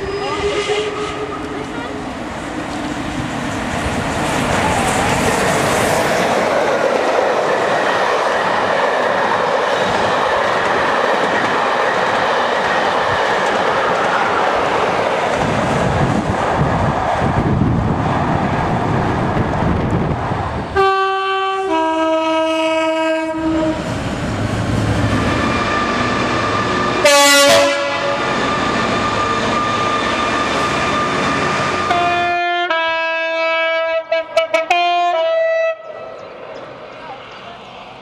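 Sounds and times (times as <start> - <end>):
diesel locomotive rumble: 0.0 - 32.6
two-tone train horn blasts: 20.8 - 23.9, 26.4 - 30.0, 31.8 - 36.2.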